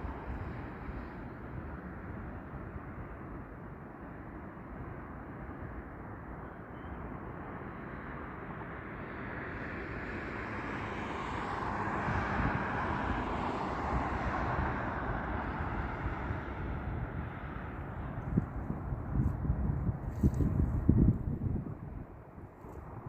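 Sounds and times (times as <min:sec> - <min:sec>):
jet engines passing: 0:09.0 - 0:23.0.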